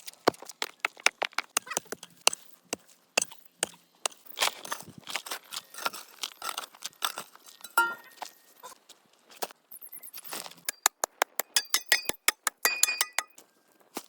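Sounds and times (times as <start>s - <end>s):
hard objects clicking and clinking: 5.5s - 8.4s, 10.6s - 13.5s.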